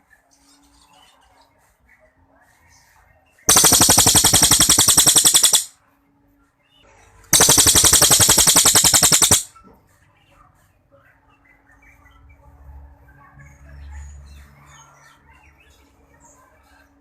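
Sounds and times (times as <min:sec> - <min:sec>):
songbird rattling trill: 0:03.5 - 0:05.7, 0:07.4 - 0:09.5.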